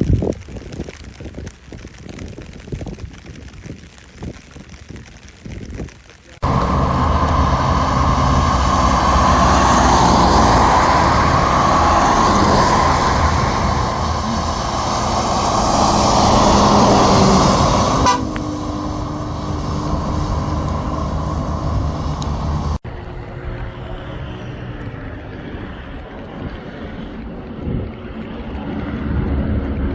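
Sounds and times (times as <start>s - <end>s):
bus diesel engine running: 6.4s - 25.1s.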